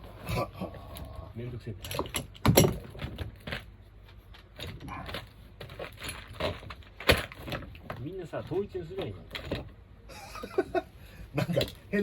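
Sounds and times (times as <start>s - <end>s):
tools clicking and clinking: 1.8s - 2.9s.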